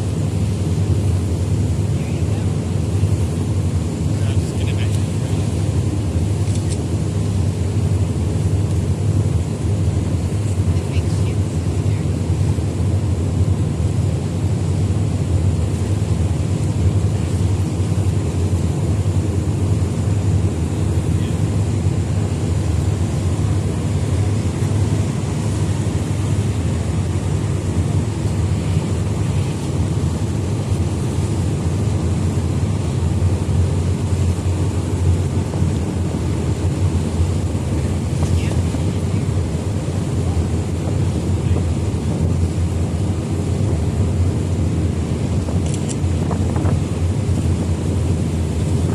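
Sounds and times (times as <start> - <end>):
ferry engines rumbling: 0.0 - 48.9
wind and water noise: 0.0 - 48.9.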